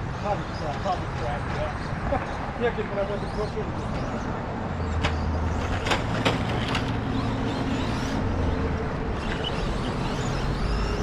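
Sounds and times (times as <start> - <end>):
rc truck motor whines: 5.1 - 11.0.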